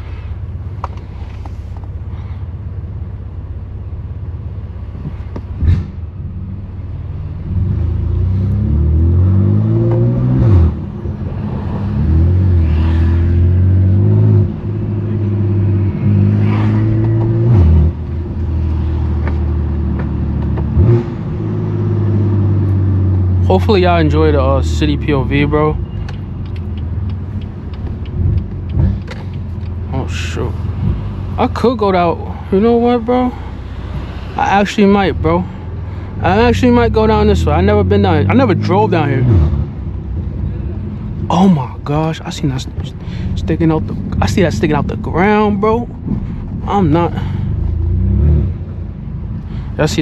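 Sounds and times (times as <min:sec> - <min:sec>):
car engine revving: 0:04.9 - 0:50.0.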